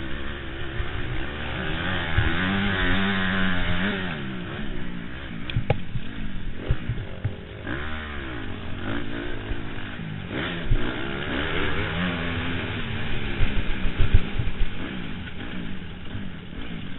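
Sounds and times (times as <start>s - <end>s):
motocross bike engine revving: 0.0s - 16.9s.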